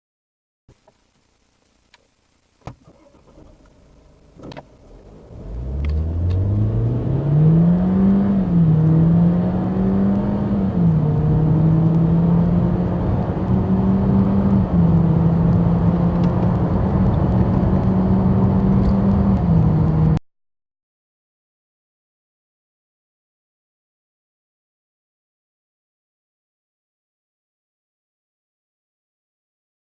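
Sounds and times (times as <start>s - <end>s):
car engine accelerating: 2.8s - 20.2s.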